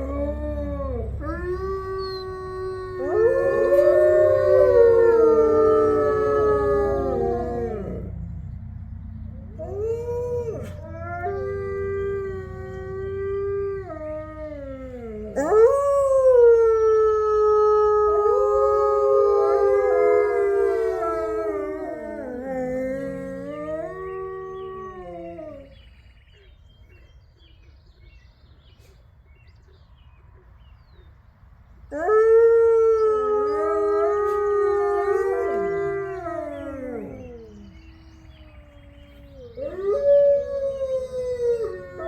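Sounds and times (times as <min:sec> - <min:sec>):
wolves howling in chorus: 0:00.0 - 0:08.4, 0:09.4 - 0:25.8, 0:31.9 - 0:42.0.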